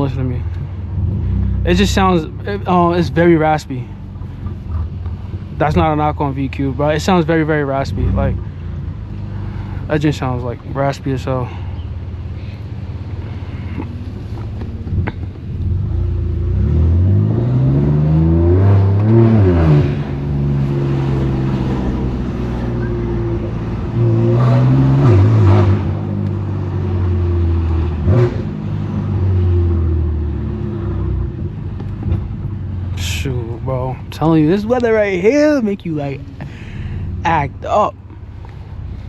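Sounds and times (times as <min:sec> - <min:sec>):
raspy car engine accelerating: 0:14.9 - 0:31.3.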